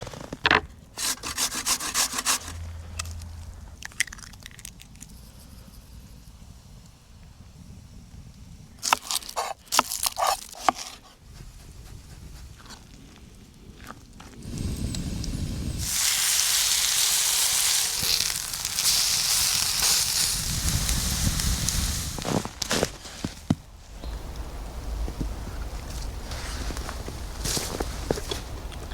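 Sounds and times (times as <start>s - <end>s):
hand saw cutting wood: 1.0s - 2.6s, 8.8s - 11.2s
fire crackles: 6.3s - 10.0s, 11.5s - 28.9s
food sizzling in a pan: 14.4s - 22.4s.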